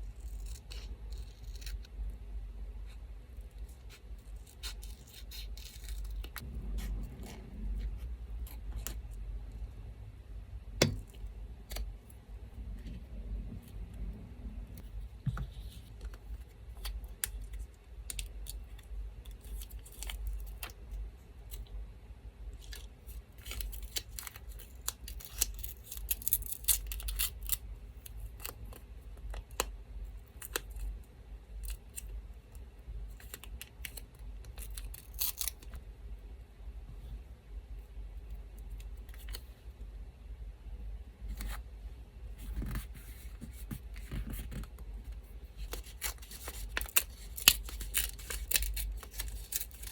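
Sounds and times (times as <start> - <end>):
electric fan humming: 6.2 - 19.2
scissors snipping paper: 23.4 - 27.6, 45.6 - 49.9.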